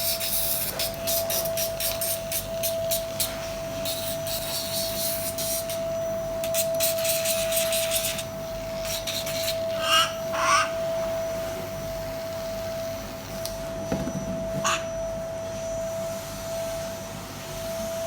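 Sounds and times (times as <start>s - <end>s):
file rasping on beak: 6.5s - 10.6s.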